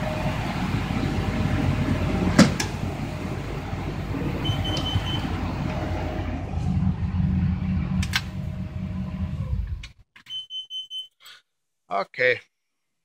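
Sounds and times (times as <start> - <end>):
car engine idling: 0.0 - 9.9
short high electronic beeps: 10.3 - 11.2.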